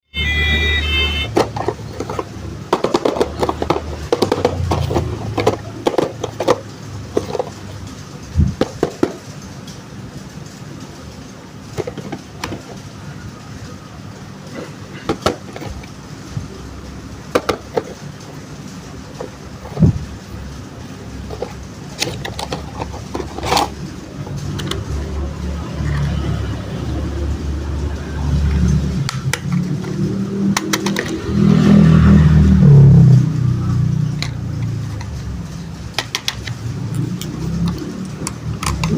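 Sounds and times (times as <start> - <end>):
toy car wheels rumbling: 0.2 - 38.9
sharp plastic clicks: 29.0 - 31.2, 35.9 - 38.9.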